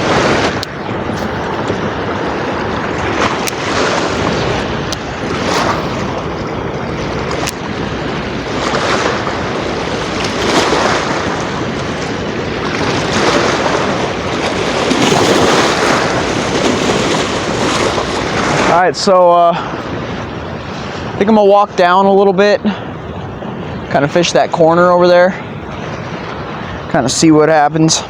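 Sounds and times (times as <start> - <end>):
floodwater roaring onto rocks: 0.0 - 19.4
wind buffeting microphone: 0.0 - 28.0.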